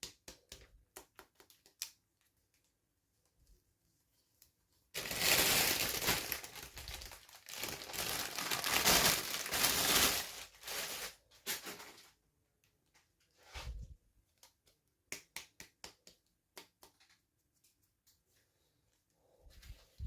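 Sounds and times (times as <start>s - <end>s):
packaging crinkling: 5.0s - 12.1s.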